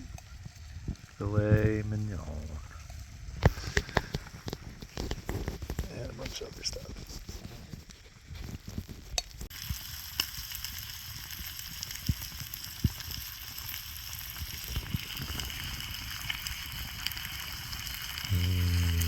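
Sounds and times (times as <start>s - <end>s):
sharp pops of frying: 8.7s - 18.3s
food sizzling in a pan: 9.4s - 19.0s.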